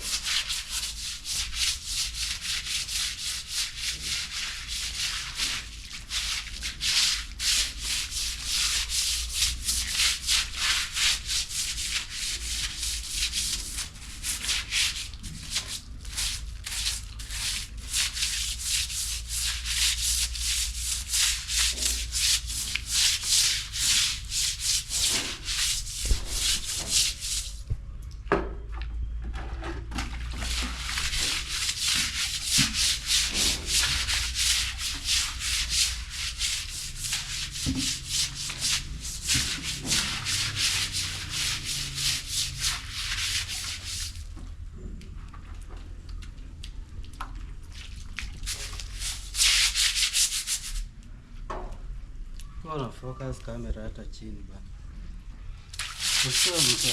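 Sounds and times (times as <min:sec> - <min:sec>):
scraping on a rough surface: 0:06.7 - 0:27.6, 0:29.3 - 0:44.2, 0:56.0 - 0:56.9.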